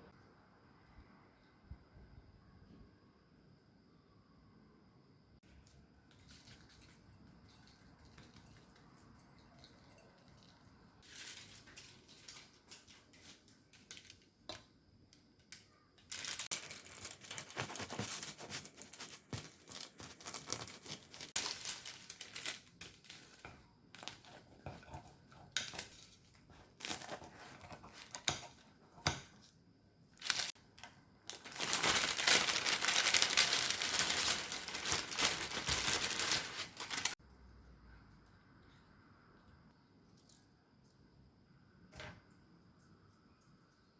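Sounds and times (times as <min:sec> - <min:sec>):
crinkling handling noise: 0:05.4 - 0:14.7, 0:15.4 - 0:29.5, 0:30.1 - 0:37.2.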